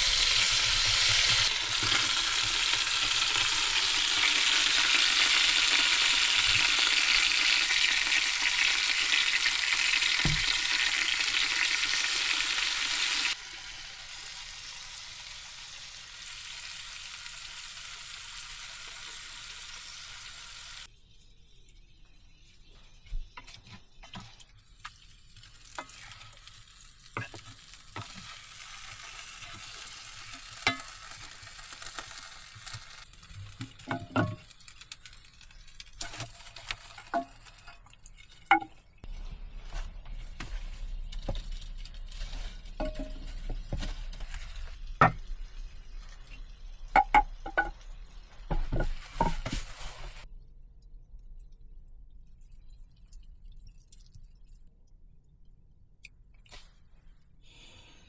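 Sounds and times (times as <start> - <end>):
food sizzling in a frying pan: 0.0 - 20.9, 25.1 - 50.3.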